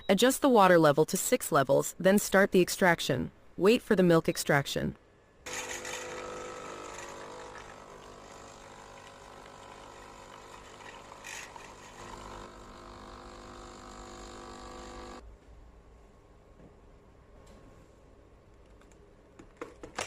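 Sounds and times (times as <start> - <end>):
coffee machine pump humming: 5.5 - 15.2.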